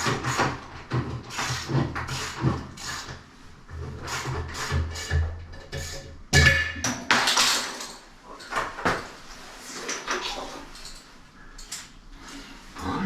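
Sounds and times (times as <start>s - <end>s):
hard objects clattering and knocking: 3.7s - 9.1s.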